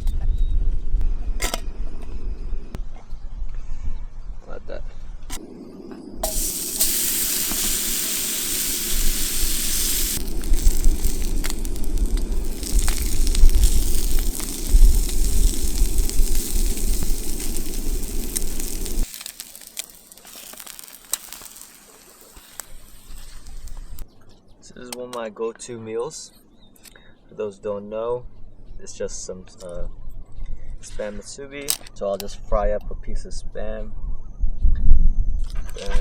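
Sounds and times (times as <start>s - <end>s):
camp stove burner hissing: 6.2s - 24.0s
crackling: 6.2s - 24.0s.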